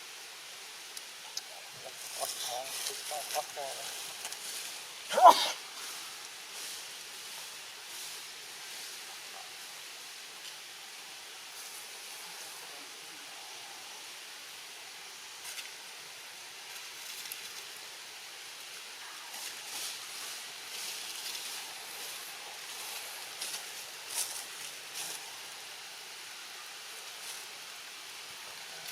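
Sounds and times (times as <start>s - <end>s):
steady outdoor hiss: 0.0s - 28.9s.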